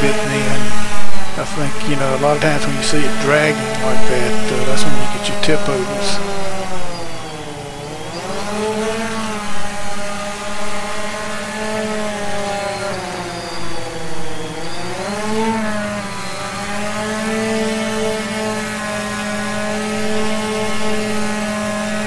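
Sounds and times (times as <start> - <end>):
drone propellers buzzing: 0.0 - 22.0.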